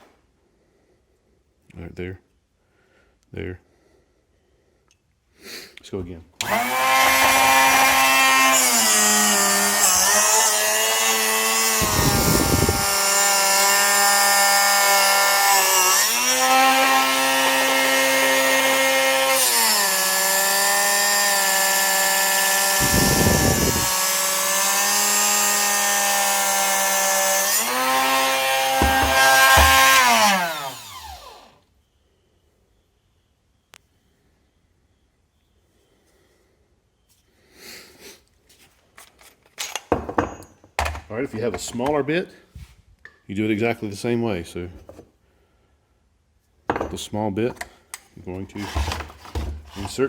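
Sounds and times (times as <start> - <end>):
grinding wheel sharpening drill bit: 6.4 - 31.6
motor spinning down: 22.8 - 24.0, 27.6 - 31.6.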